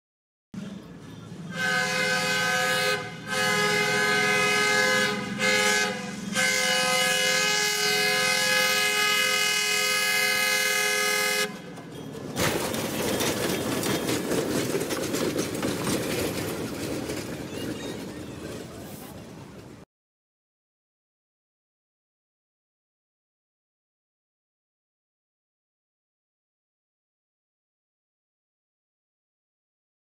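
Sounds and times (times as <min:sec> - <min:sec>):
locomotive rumbling past: 0:00.6 - 0:19.8
locomotive air horn blasts: 0:01.5 - 0:11.7.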